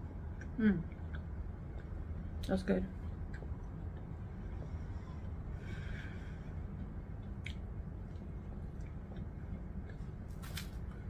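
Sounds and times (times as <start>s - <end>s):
low room hum: 0.0s - 11.0s
faint chewing: 0.3s - 2.3s, 3.0s - 5.4s, 6.7s - 11.0s.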